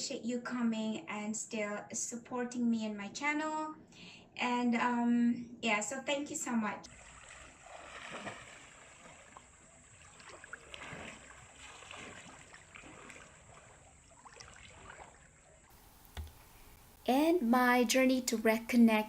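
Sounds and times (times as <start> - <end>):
faint water ambience: 6.8 - 19.0.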